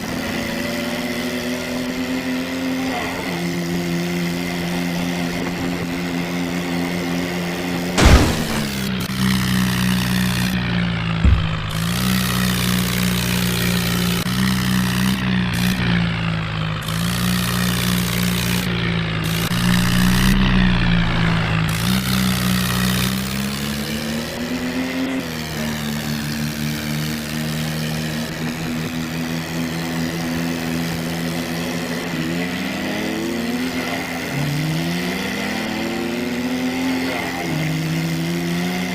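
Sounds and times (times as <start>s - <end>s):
toy tractor motor drone: 0.0s - 38.9s
brief knock: 11.2s - 11.8s.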